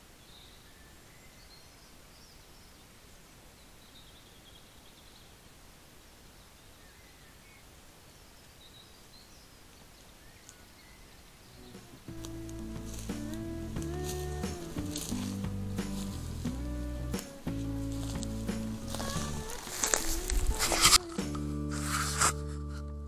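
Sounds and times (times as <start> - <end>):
faint bird chirps: 0.0 - 15.2
steady low hiss: 0.0 - 23.0.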